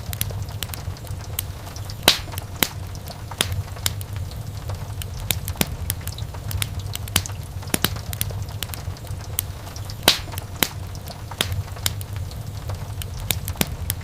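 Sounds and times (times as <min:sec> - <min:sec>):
fire flames rumbling: 0:00.0 - 0:14.0
logs popping and crackling: 0:00.0 - 0:14.0.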